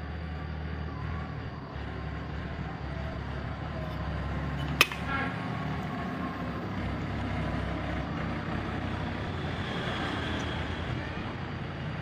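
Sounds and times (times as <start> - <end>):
rumbling background noise: 0.0 - 12.0.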